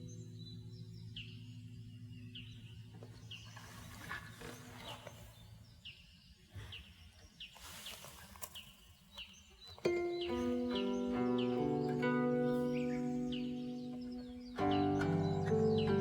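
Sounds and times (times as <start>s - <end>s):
small bird chirping: 0.0s - 16.0s
low harp notes: 9.9s - 16.0s.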